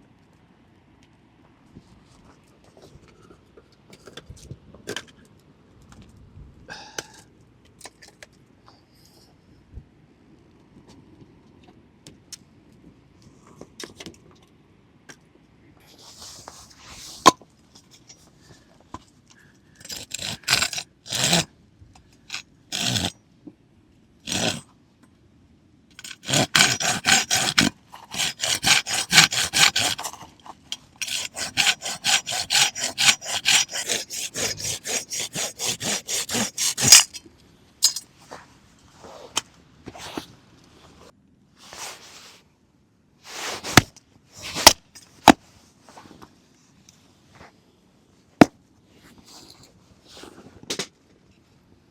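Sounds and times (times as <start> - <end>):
hand saw cutting wood: 19.8 - 21.5, 22.3 - 23.2, 24.3 - 24.7, 25.9 - 37.2, 43.6 - 45.4.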